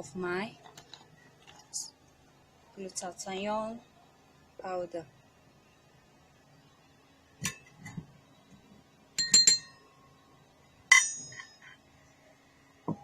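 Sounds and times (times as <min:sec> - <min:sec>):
measuring spoon clinking on bowl: 0:09.2 - 0:09.8.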